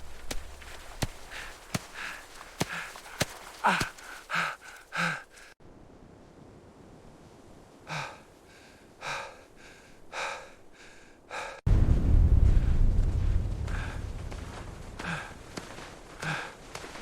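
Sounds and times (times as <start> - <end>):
low wind buffeting: 0.0 - 17.0
heavy gasping breaths: 1.2 - 5.6, 7.9 - 11.6, 15.0 - 15.4, 16.2 - 16.6.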